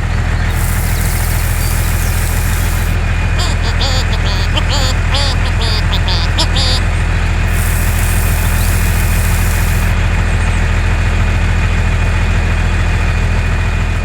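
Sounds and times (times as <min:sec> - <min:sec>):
small engine idling: 0:00.4 - 0:03.0
high hiss: 0:00.5 - 0:06.8, 0:07.5 - 0:10.0.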